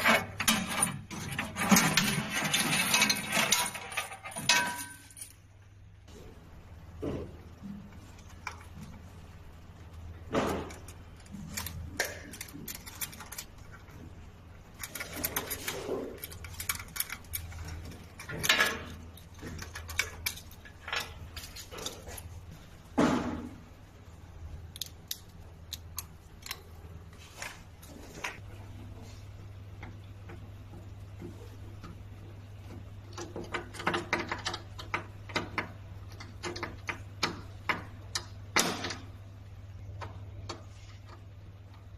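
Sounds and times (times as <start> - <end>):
metal tools clicking and clinking: 0.0 - 5.4, 10.6 - 13.9, 14.8 - 22.4.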